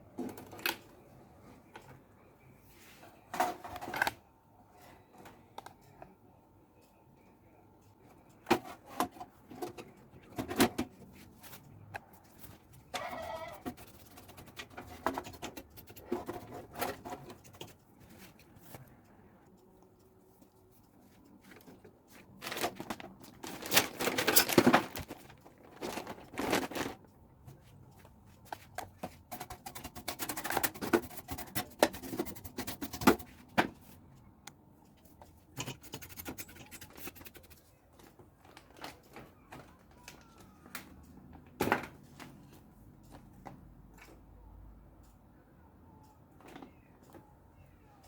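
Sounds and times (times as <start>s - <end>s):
tools scraping and clicking: 8.4s - 18.9s, 28.5s - 33.4s, 35.2s - 37.6s.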